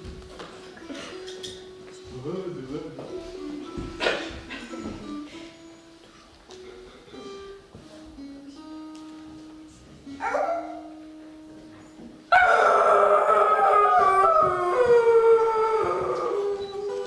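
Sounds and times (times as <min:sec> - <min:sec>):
soft plucked background music: 0:00.0 - 0:17.0
dog howling: 0:10.2 - 0:11.0, 0:12.3 - 0:17.0.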